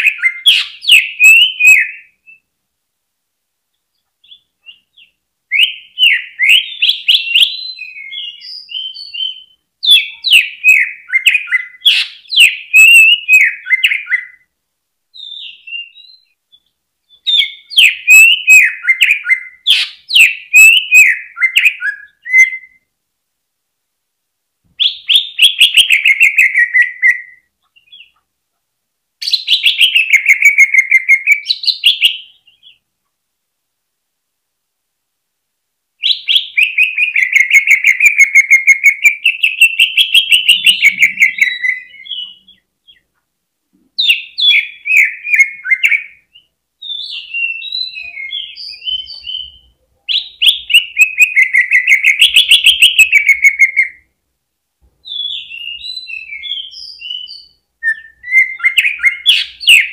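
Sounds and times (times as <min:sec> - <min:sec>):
bird singing chattering phrases: 0:39.2 - 0:43.1.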